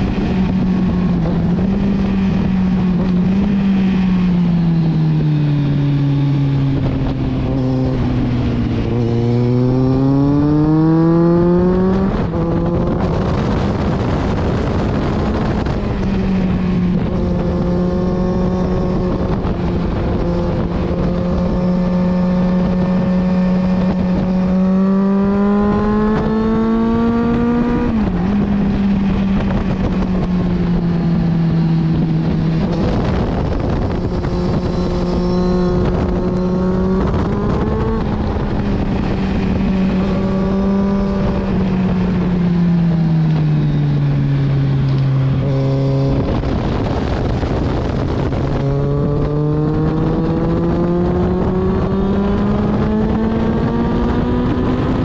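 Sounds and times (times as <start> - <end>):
motorcycle engine revving: 0.0 - 55.0
rushing wind: 0.0 - 55.0.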